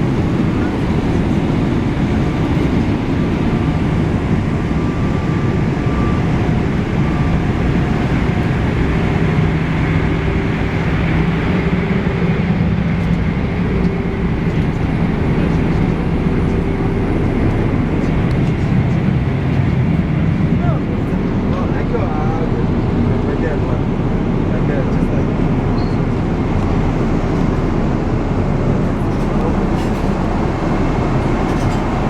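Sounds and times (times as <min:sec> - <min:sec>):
airplane cabin airflow and engine: 0:00.0 - 0:32.0
faint steady hums: 0:00.0 - 0:32.0.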